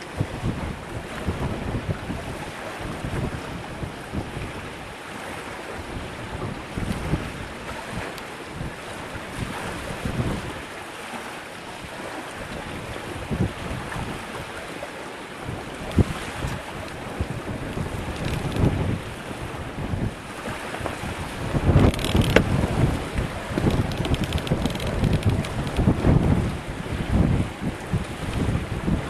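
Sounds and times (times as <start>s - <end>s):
gusty wind buffeting microphone: 0.0s - 4.8s, 5.7s - 10.6s, 12.7s - 14.4s, 15.4s - 29.0s.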